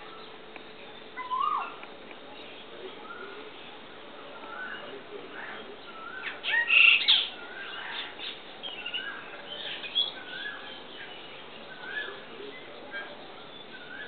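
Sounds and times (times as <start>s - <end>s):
rough bird calls: 3.0s - 14.0s
birds whistling notes: 4.4s - 14.0s.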